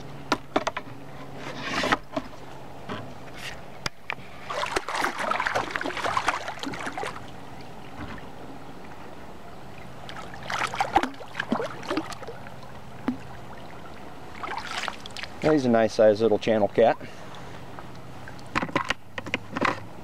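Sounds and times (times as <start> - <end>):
water splashing by boat: 4.2 - 15.8.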